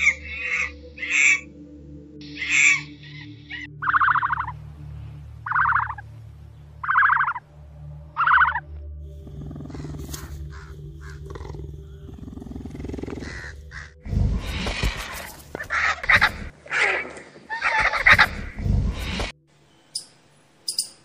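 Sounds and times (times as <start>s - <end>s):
short raspy calls: 6.8s - 7.4s, 8.2s - 8.6s, 9.6s - 12.1s, 12.8s - 14.0s
cheetah low pulsing rumble: 7.6s - 16.5s.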